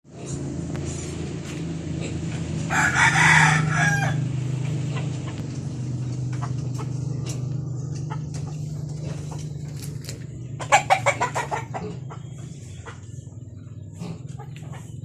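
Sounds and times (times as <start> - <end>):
steady low hum: 0.1 - 15.0
rooster crowing: 2.7 - 4.4.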